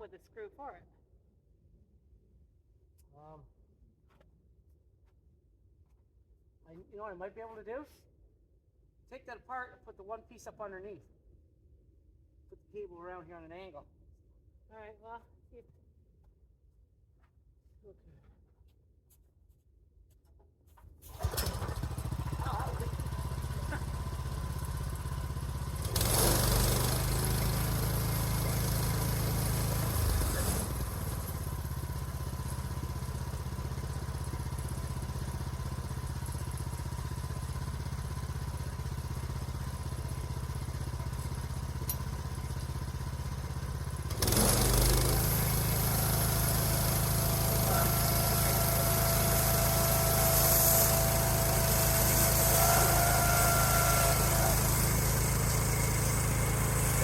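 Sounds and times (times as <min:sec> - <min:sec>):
small gasoline engine running: 0:21.1 - 0:57.0.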